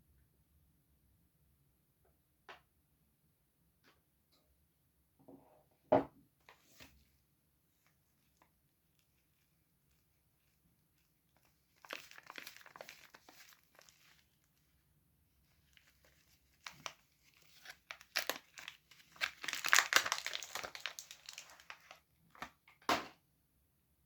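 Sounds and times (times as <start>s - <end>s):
soap wrapper crinkling and tearing: 7.8s - 14.7s, 15.5s - 22.6s.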